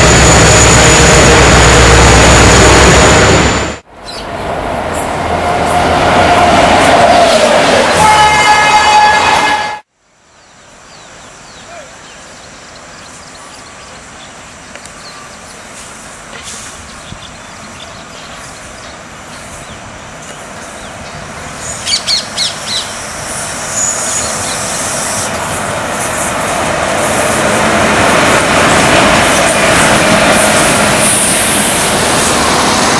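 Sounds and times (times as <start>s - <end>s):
electric locomotive hauling train: 0.0s - 9.9s, 12.7s - 32.9s
birds chirping: 16.7s - 24.8s.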